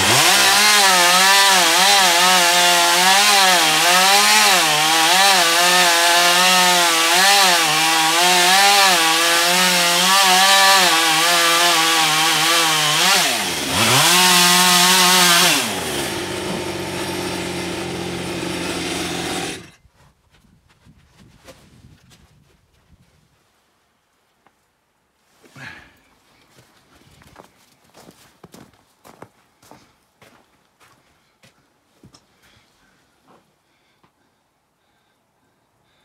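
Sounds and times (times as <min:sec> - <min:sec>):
chainsaw cutting log: 0:00.0 - 0:19.8.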